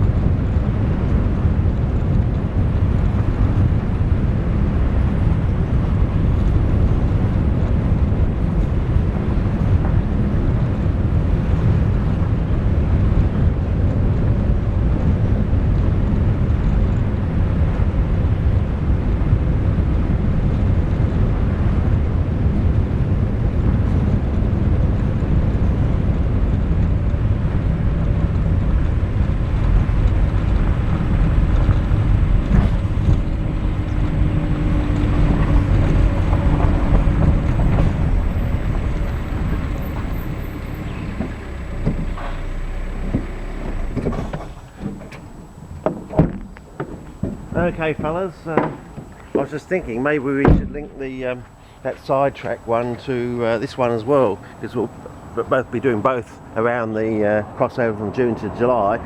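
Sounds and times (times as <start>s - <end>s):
moving vehicle rumble: 0.0s - 59.0s.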